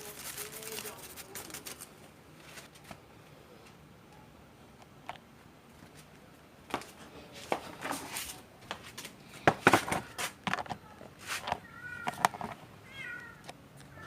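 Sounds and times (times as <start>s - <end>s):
knocks and clicks of handled parts: 9.5s - 10.8s, 11.4s - 12.6s
short scraping sounds: 11.2s - 11.6s.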